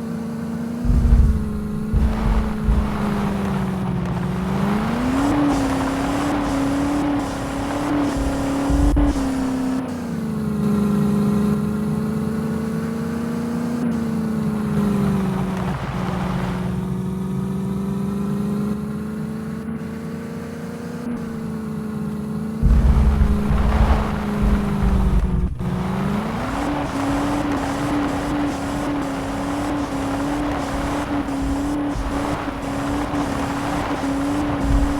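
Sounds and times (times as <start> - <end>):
diesel tractor engines under load: 0.0 - 34.9
heavy low thumps: 0.8 - 6.0, 7.3 - 9.8, 22.6 - 27.8, 34.4 - 34.9.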